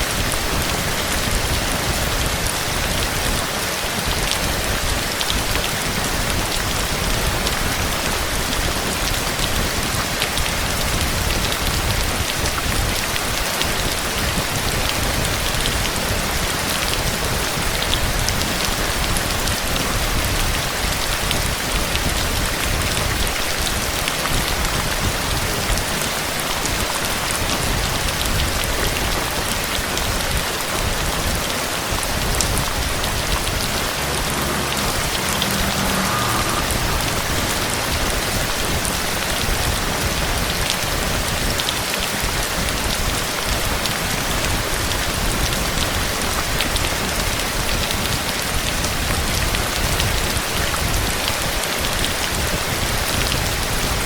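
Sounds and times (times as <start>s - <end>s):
heavy rain: 0.0s - 54.0s
raindrops ticking: 21.2s - 53.6s.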